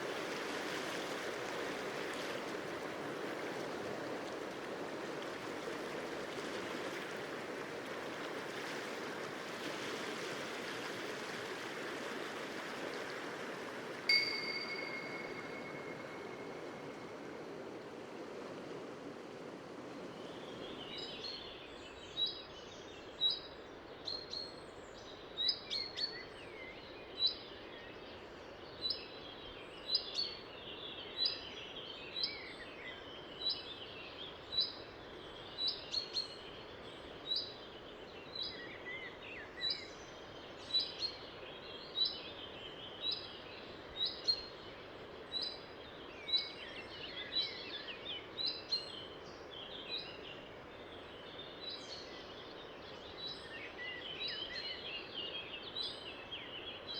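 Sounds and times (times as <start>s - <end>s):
river rushing: 0.0s - 20.6s
bird repeating short high note: 14.1s - 16.6s
songbirds chirping and warbling: 20.0s - 56.9s.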